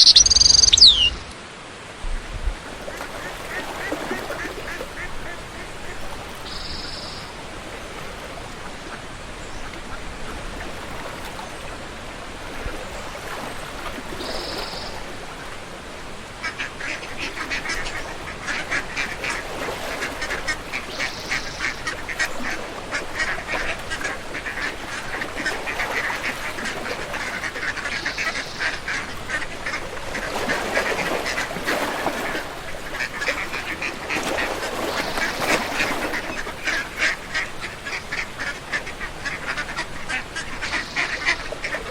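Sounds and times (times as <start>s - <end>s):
ducks quacking: 0.0s - 1.2s, 2.9s - 7.2s, 16.4s - 41.9s.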